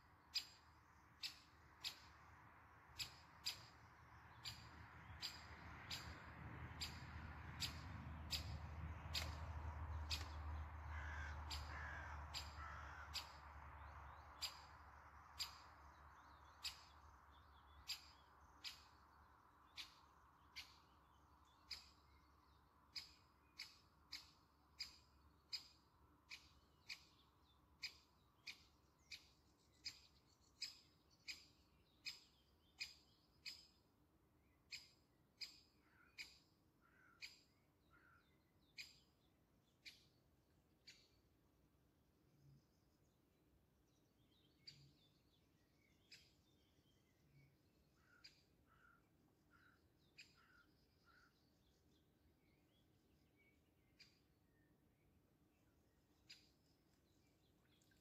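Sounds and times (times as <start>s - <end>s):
soft bird chirps: 0.0s - 2.2s, 2.9s - 41.4s, 42.2s - 58.0s
short sharp bird calls: 10.9s - 13.4s.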